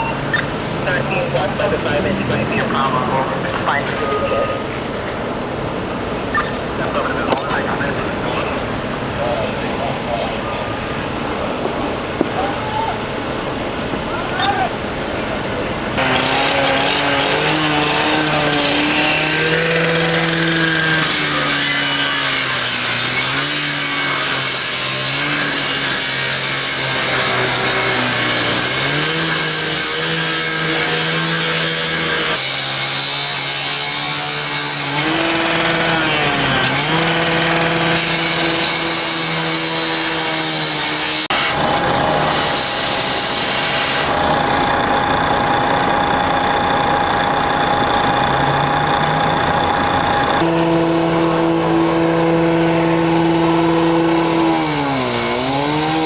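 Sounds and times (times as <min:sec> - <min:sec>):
engine running hard: 0:00.0 - 0:56.0
steady higher tone: 0:06.9 - 0:08.5.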